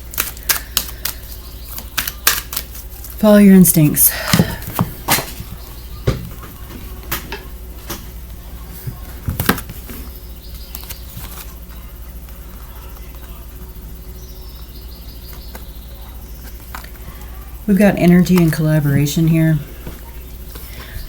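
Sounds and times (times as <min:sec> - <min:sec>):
faint bird chirps: 0:10.0 - 0:12.1, 0:12.7 - 0:17.6.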